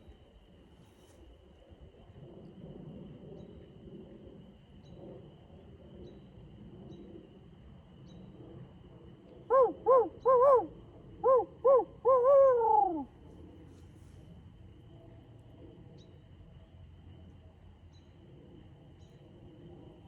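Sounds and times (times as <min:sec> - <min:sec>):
owl hooting: 0:09.5 - 0:13.1.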